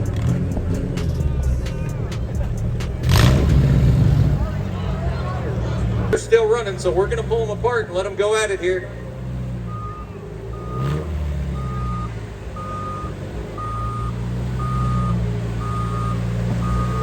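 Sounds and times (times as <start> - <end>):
heavy vehicle engine running: 0.0 - 17.0
reverse alarm beeping: 8.8 - 17.0.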